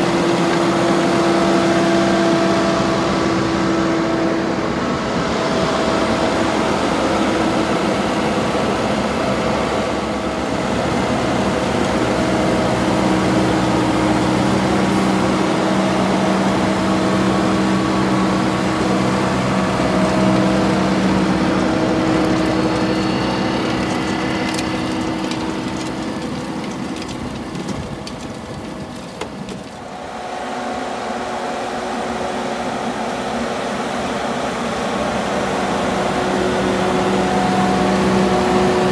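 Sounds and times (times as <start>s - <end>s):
tractor engine under load: 0.0s - 30.5s.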